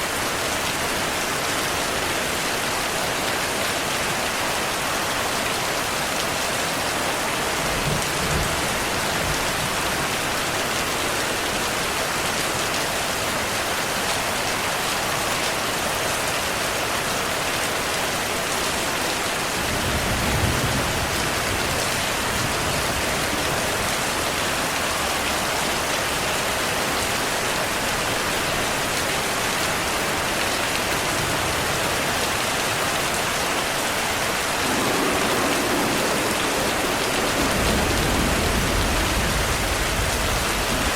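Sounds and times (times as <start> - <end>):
heavy rain: 0.0 - 40.9
thunder rumbling: 34.3 - 40.9.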